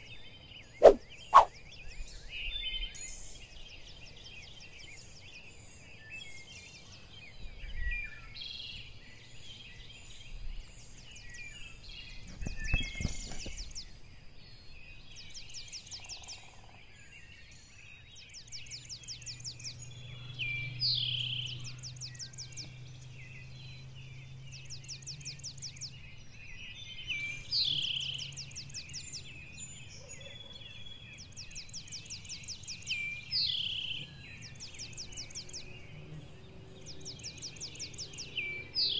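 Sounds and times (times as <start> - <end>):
bird chirps: 0.8 - 2.9.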